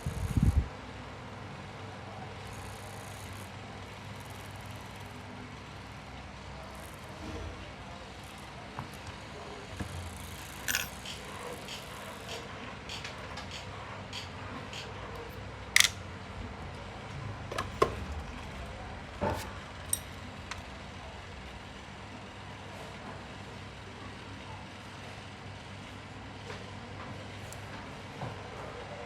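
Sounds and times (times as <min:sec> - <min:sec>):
tools and clock parts clicking: 0:10.6 - 0:11.8, 0:14.2 - 0:16.0, 0:17.5 - 0:18.0, 0:19.3 - 0:20.7.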